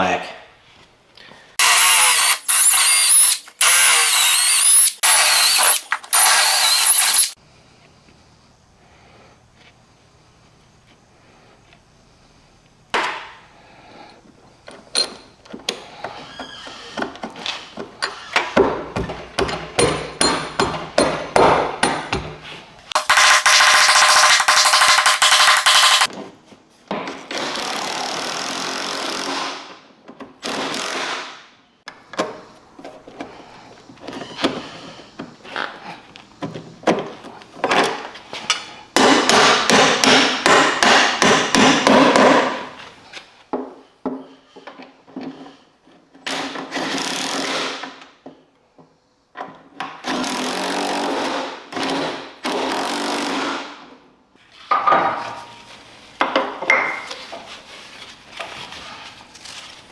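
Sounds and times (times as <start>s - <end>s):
power tool running: 1.6s - 7.4s, 22.9s - 26.1s
hammer-like strikes: 19.4s - 22.4s, 23.0s - 26.1s.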